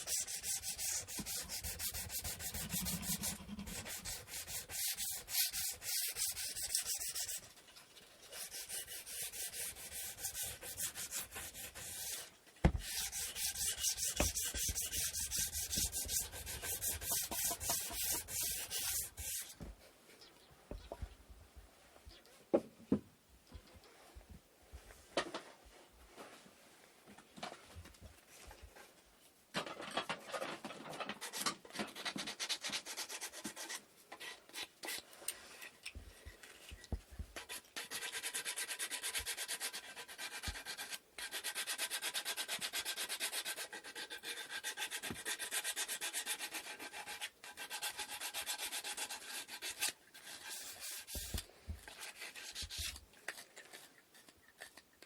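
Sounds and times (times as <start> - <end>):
sandpaper rubbing on wood: 0.0 - 7.5, 8.3 - 19.6.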